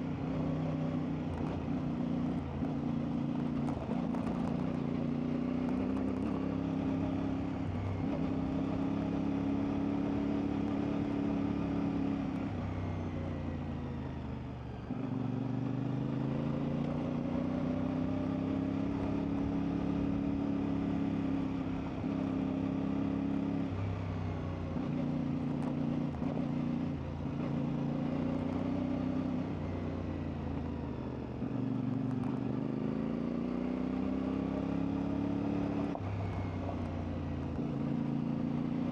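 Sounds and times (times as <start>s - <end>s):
motorcycle engine revving: 31.3s - 38.9s.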